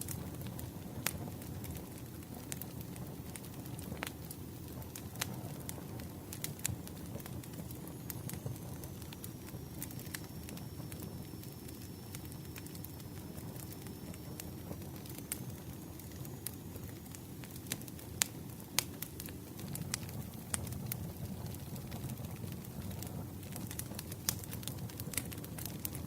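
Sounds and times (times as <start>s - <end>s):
crackles and pops of wood: 0.0s - 26.0s
low rumble of flames: 0.0s - 26.0s.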